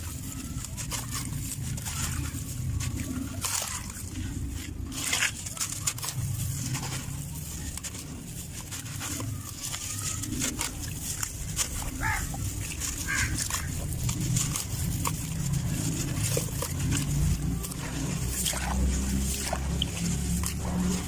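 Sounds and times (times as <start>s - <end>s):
dry dirt crumbling: 0.0s - 21.0s.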